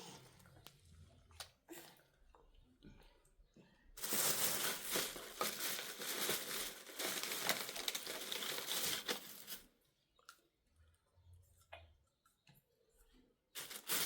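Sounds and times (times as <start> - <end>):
crinkling and rustling: 4.0 - 9.7, 13.6 - 14.0.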